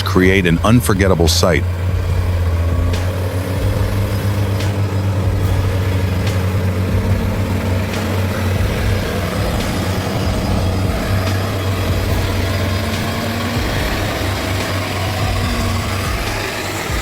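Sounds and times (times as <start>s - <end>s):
diesel engines running: 0.0s - 17.0s.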